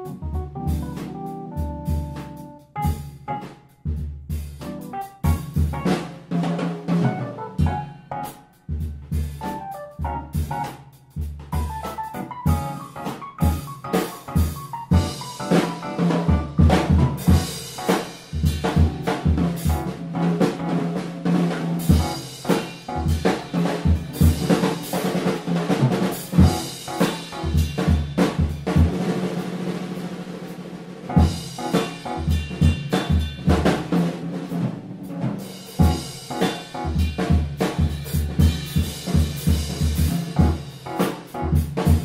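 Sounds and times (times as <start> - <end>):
sustained bass notes: 0.0 - 2.7
busy drum kit: 0.0 - 42.0
jazz band playing: 0.0 - 42.0.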